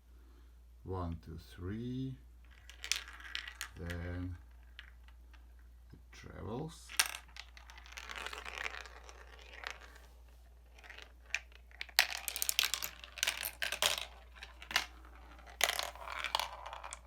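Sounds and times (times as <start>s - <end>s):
marble rolling rattle: 2.4s - 5.7s, 6.7s - 17.0s
marble clicking on track: 2.5s - 5.4s, 6.9s - 9.9s, 10.7s - 17.0s.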